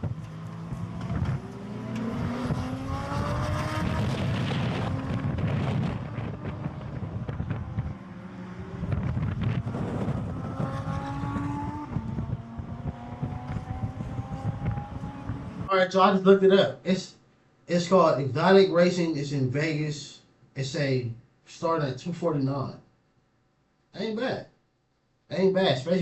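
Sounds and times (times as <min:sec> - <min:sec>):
sports car engine accelerating: 0:00.0 - 0:15.7.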